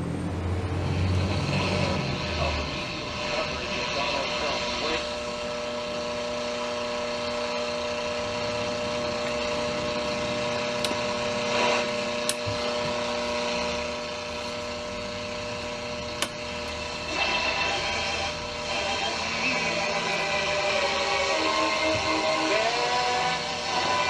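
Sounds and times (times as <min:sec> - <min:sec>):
radio static hiss: 0:00.9 - 0:24.0
radio whistle tones: 0:17.0 - 0:24.0.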